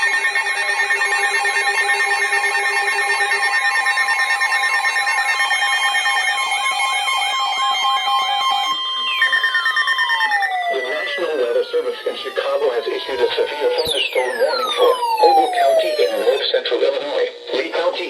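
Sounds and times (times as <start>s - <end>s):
steady electronic alert tones: 0.0s - 16.4s
warbling alert wail: 7.2s - 16.4s.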